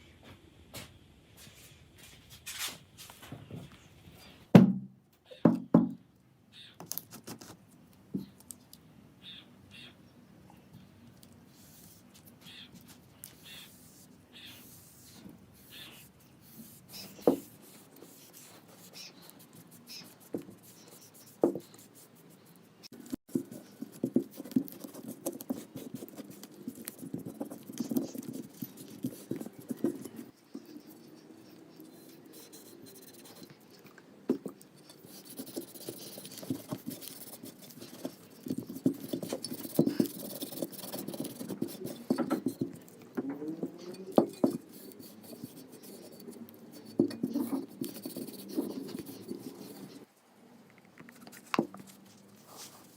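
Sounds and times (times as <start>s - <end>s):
scraping and rubbing on metal: 34.4s - 42.9s, 43.5s - 50.1s.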